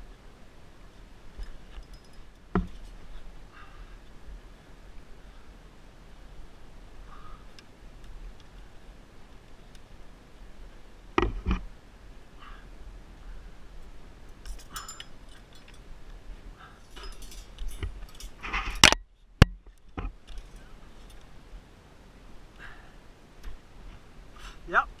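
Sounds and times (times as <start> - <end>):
metal gear clinking and knocking: 1.7 - 2.8, 14.4 - 15.8, 16.9 - 18.9.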